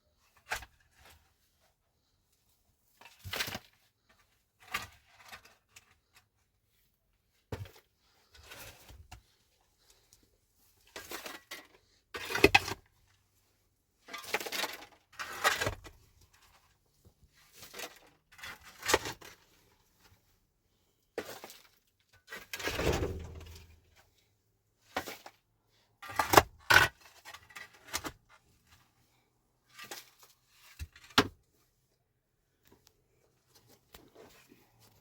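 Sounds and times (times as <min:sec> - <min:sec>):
rustling scrape: 0:22.6 - 0:24.0.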